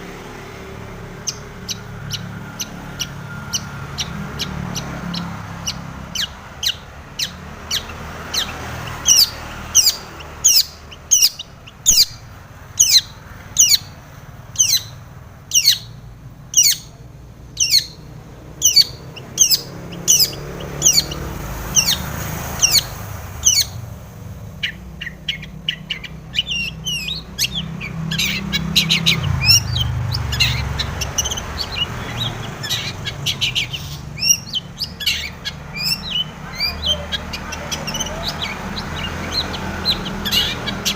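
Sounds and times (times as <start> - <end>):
bird singing sharp sliding notes: 16.6 - 40.9.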